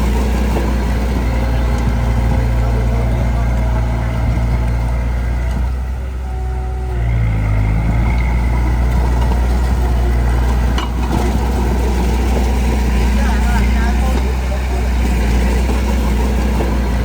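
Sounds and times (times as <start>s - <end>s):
diesel engine revving: 0.0s - 17.0s.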